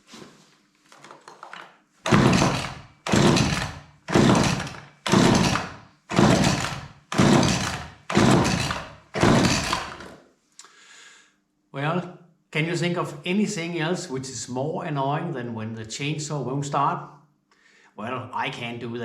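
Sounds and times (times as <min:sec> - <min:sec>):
chainsaw recoil starter pulls: 0:01.3 - 0:10.2.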